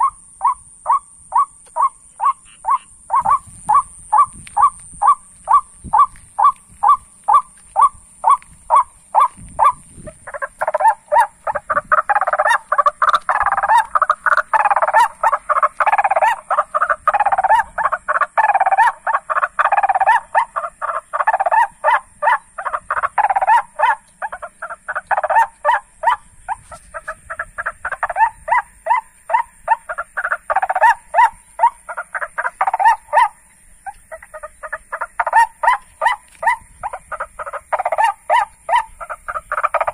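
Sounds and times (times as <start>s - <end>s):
bird croaking calls: 0.0s - 39.9s.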